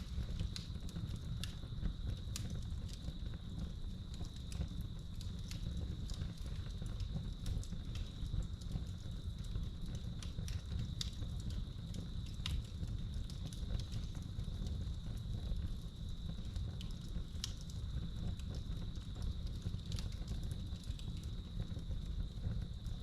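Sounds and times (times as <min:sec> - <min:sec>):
fire popping: 0:00.0 - 0:23.0
wood fire crackling: 0:00.0 - 0:23.0.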